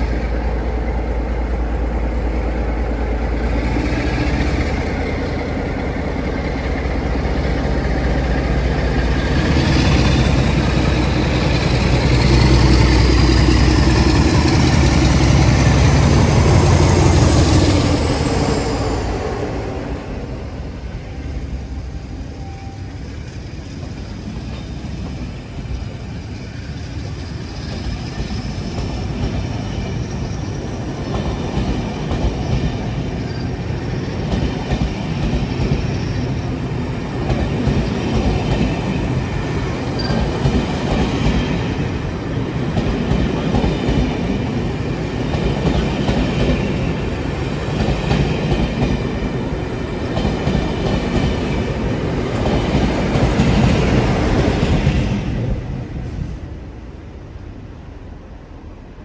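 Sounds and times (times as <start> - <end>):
train wheels rumbling on rails: 0.0 - 59.0
faint high wheel squeal: 33.2 - 34.1, 40.0 - 40.4.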